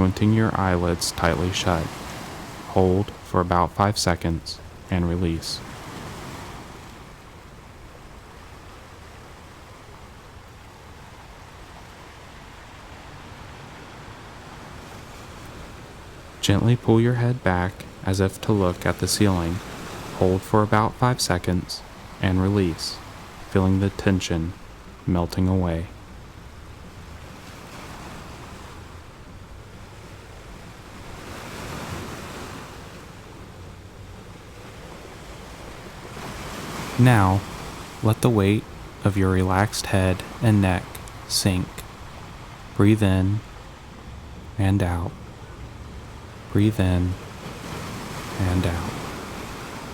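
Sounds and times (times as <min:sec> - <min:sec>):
ocean waves on a beach: 0:00.0 - 0:49.9.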